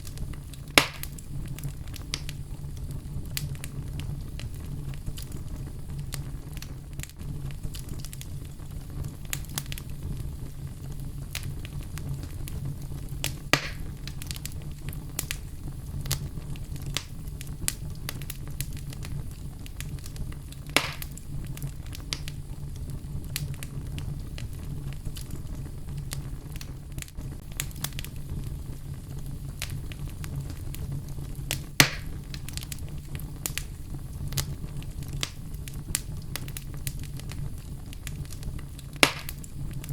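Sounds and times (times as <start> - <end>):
fire crackling: 0.0 - 39.9
fire flames rumbling: 0.0 - 39.9
loud fire pops: 0.0 - 39.9.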